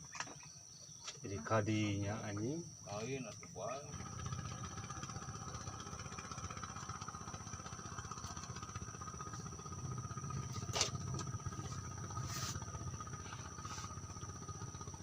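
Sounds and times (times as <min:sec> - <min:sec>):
high insect-like tones: 0:00.0 - 0:15.0.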